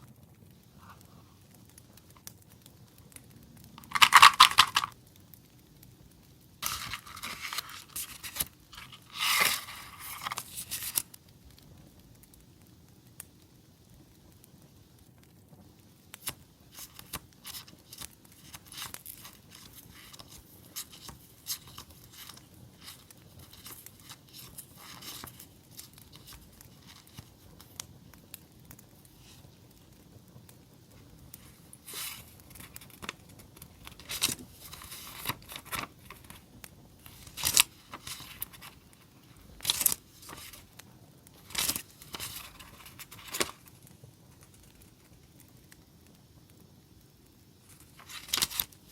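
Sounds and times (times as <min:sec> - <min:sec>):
campfire crackling: 0:00.0 - 0:48.9
paper packaging crinkling and tearing: 0:03.8 - 0:05.0, 0:06.6 - 0:11.2, 0:16.2 - 0:27.8, 0:31.3 - 0:40.8, 0:41.4 - 0:45.2, 0:47.6 - 0:48.9.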